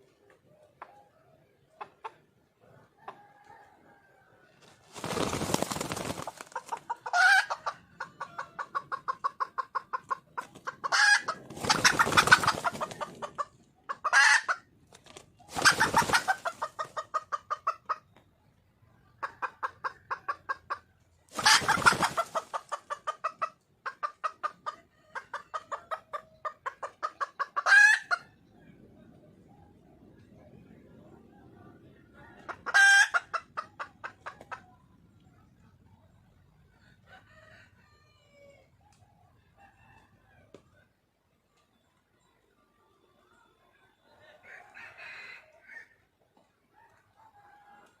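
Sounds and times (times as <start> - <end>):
hen clucking rapidly: 4.9 - 18.2, 19.0 - 28.4, 32.3 - 34.8.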